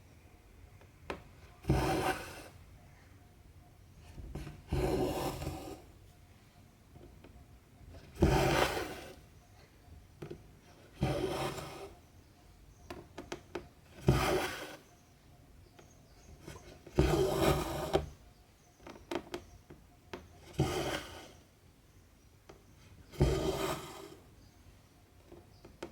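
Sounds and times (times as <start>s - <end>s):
thread rasping through fabric: 8.2s - 9.2s.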